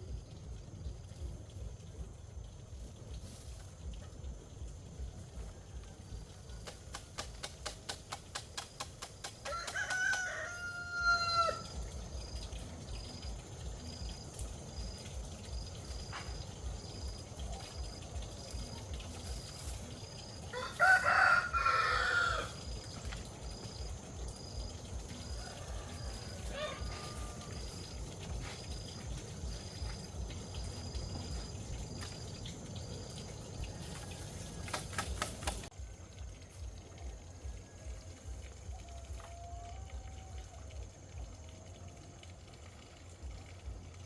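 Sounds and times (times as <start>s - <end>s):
rooster crowing: 9.4s - 11.7s, 20.5s - 22.8s, 25.1s - 27.9s, 38.7s - 40.7s.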